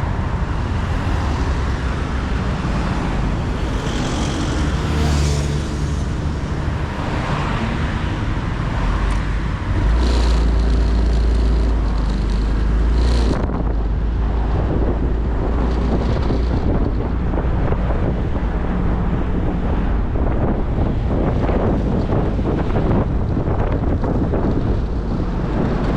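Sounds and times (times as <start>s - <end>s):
motorcycle engine rumbling: 0.0s - 25.9s
wind on microphone: 0.0s - 25.9s.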